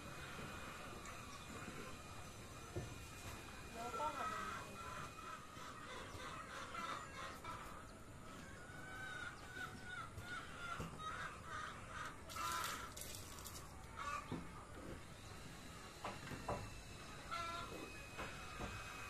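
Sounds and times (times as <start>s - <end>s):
loud noisy bird call: 3.6s - 14.5s, 16.8s - 19.0s
bird calls: 3.7s - 14.6s.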